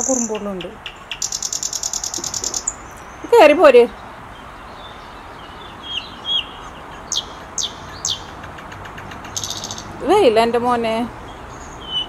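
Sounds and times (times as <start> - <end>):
songbird chirps and whistles: 0.0 - 3.4, 4.8 - 9.9, 11.6 - 12.0.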